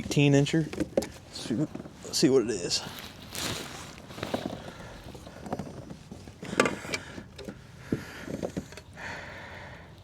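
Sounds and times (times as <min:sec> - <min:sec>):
knocks and clicks of handled gear: 0:04.1 - 0:08.9.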